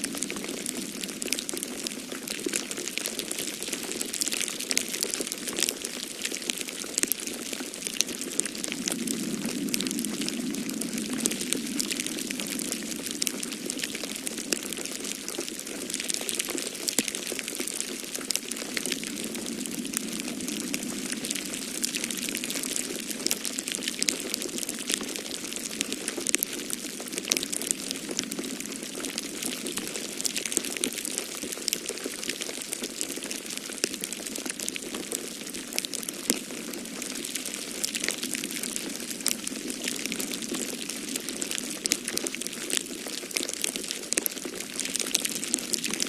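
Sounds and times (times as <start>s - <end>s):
wood fire crackling and popping: 0.0s - 46.0s
snowstorm wind rushing: 8.6s - 13.6s.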